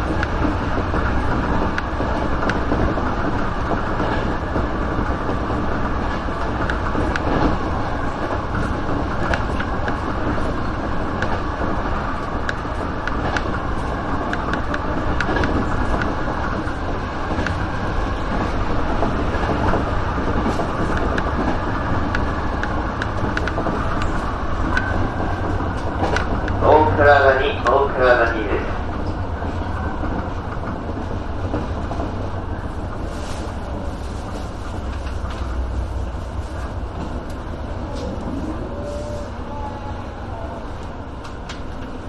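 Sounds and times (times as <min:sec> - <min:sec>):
train wheels rumbling on rail: 0:00.0 - 0:42.0
faint clicks: 0:22.0 - 0:24.9.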